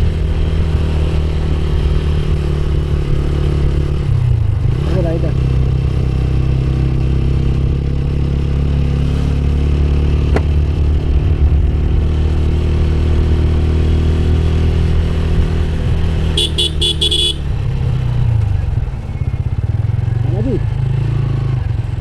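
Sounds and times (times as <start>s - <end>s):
motorcycle engine running: 0.0s - 22.0s
vehicle horn beeps: 16.4s - 17.5s.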